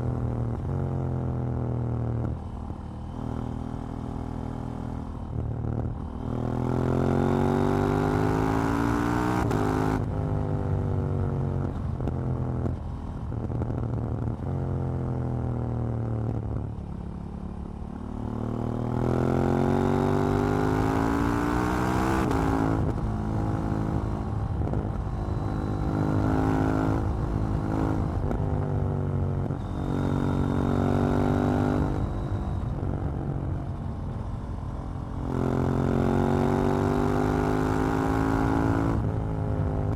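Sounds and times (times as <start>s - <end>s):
motorcycle engine accelerating: 17.7s - 39.9s.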